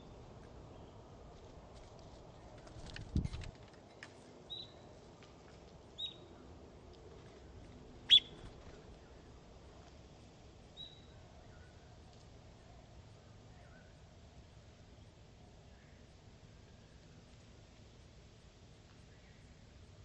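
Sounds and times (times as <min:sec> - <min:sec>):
bird chirping: 0:04.5 - 0:04.9, 0:06.0 - 0:06.3, 0:08.0 - 0:09.2, 0:10.8 - 0:11.8.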